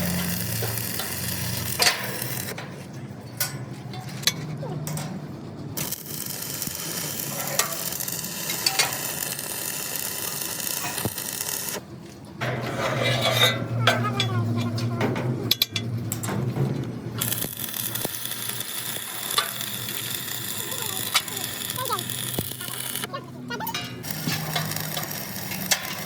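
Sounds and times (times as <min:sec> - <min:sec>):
arc welding crackling sizzle: 0:00.0 - 0:02.6, 0:05.8 - 0:11.8, 0:17.2 - 0:23.1, 0:24.0 - 0:26.0.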